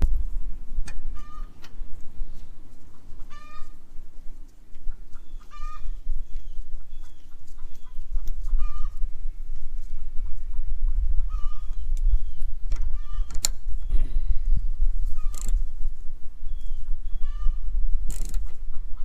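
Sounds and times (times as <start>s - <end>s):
low rumble: 0.0s - 19.0s
short high animal calls: 3.2s - 3.8s.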